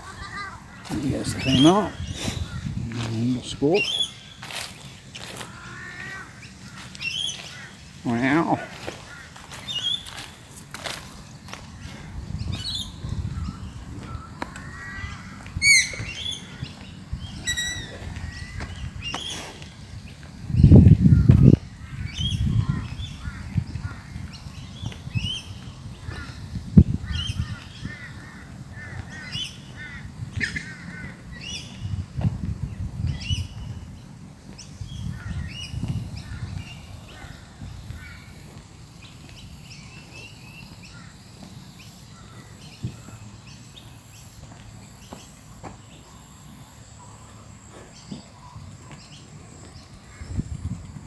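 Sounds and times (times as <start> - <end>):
birds chirping harshly: 0.0 - 32.0.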